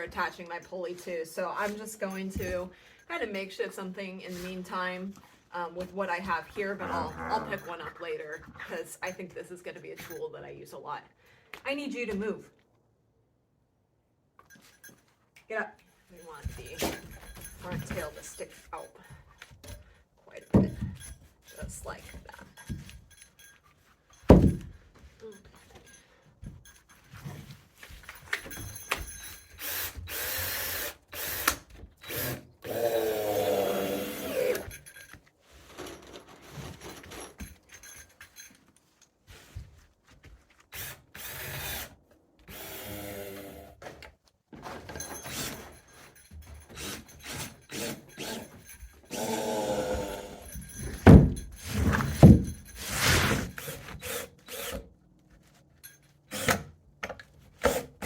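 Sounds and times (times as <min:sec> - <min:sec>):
power drill driving screws: 0:29.6 - 0:34.7, 0:40.7 - 0:43.7, 0:45.2 - 0:45.7, 0:46.7 - 0:50.5, 0:51.6 - 0:54.9, 0:56.3 - 0:56.7.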